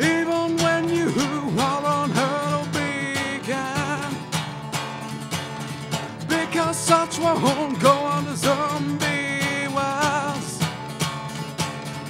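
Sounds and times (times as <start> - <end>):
man singing: 0.0 - 4.6, 6.2 - 10.9
strummed acoustic guitar: 0.0 - 12.0.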